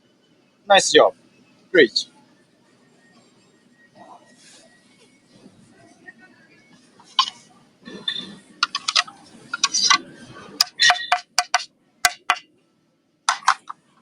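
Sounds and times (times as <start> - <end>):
hard objects clicking together: 8.6 - 10.0, 10.6 - 12.4, 13.3 - 13.8.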